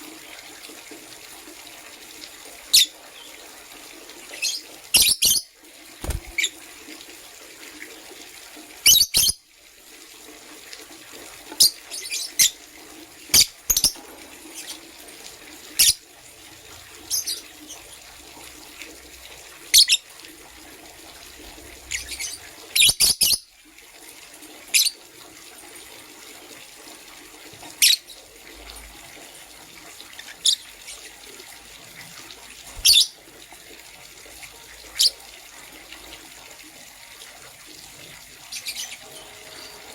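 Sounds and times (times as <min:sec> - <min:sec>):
birds chirping: 0:06.0 - 0:06.6, 0:32.8 - 0:33.2, 0:38.5 - 0:39.9.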